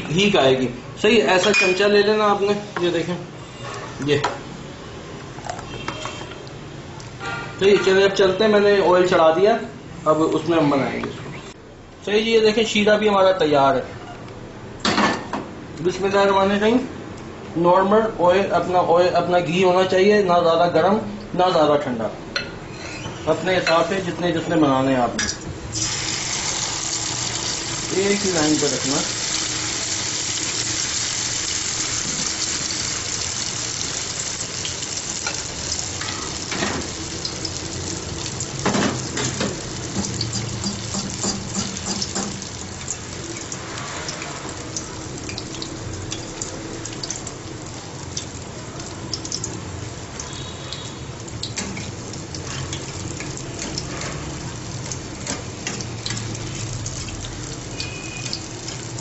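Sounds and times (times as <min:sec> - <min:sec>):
batter sizzling in hot fat: 0:25.7 - 0:59.0
metal spoon knocking pan: 0:38.7 - 0:42.4.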